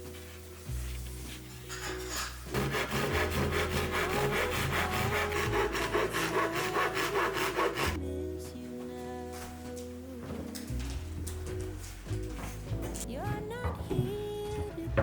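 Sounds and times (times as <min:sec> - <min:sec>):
soft background music: 0:00.0 - 0:15.0
saw cutting wood: 0:02.5 - 0:08.0.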